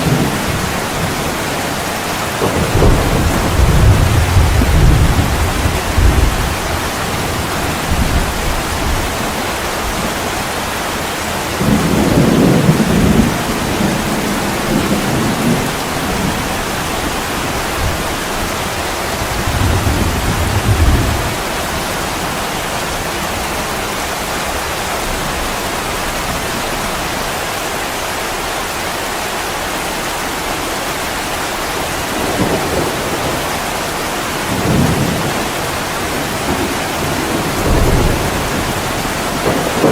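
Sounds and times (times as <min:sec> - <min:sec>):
thunder rolling: 0:00.0 - 0:10.4, 0:11.4 - 0:27.1, 0:32.1 - 0:39.9
heavy rain falling: 0:00.0 - 0:39.9.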